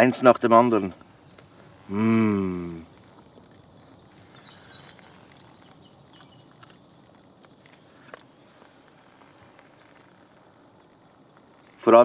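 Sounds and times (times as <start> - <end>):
high bird chirps: 3.6 - 8.7.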